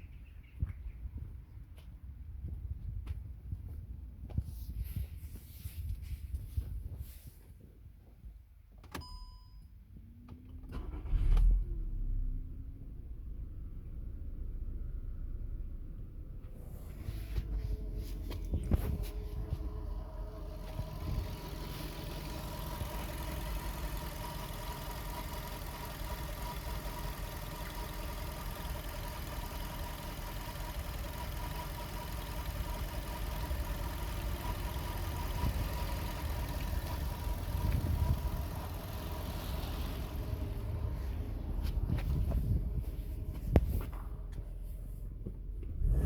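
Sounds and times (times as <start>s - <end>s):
car engine idling: 13.1s - 46.0s.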